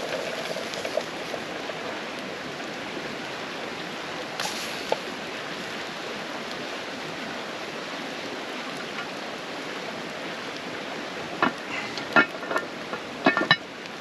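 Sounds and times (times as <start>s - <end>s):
creek water rushing: 0.0s - 14.0s
sharp clicks and knocks: 11.4s - 13.6s.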